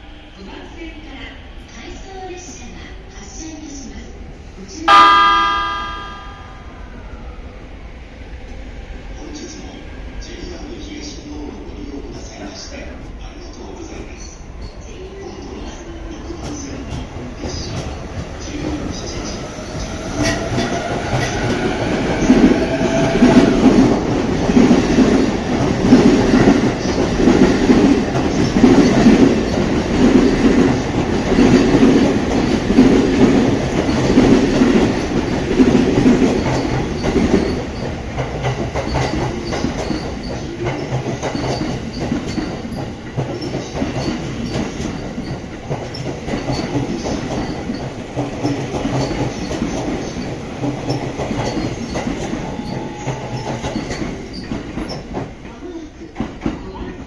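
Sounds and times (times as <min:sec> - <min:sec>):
train rumble: 0:09.2 - 0:57.0
train wheels clattering over rail joints: 0:23.7 - 0:52.4.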